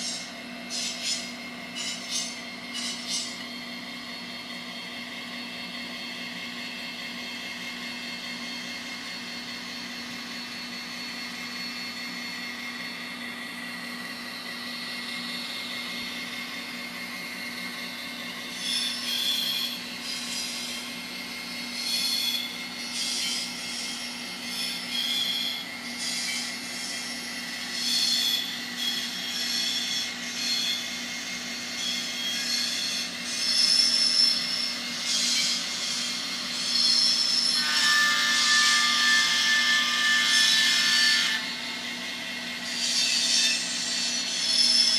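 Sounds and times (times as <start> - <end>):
high-pitched squeals: 18.5 - 30.9, 31.7 - 41.6.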